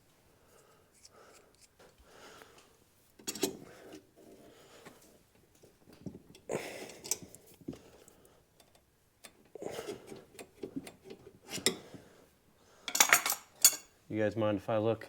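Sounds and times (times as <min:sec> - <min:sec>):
metallic clicks and knocks of tools: 0:03.2 - 0:03.6.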